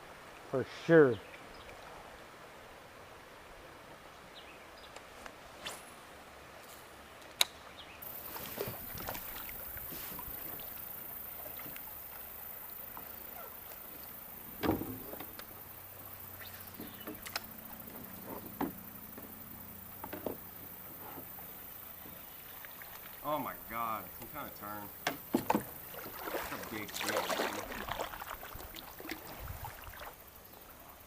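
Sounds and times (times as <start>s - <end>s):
water washing: 8.0s - 30.3s
kayak knocks and clicks: 14.5s - 15.6s, 16.7s - 19.4s, 20.0s - 21.4s, 24.1s - 29.3s.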